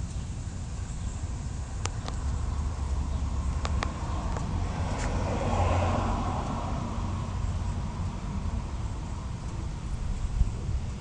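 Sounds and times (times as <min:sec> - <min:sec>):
low outdoor rumble with hiss: 0:00.0 - 0:11.0.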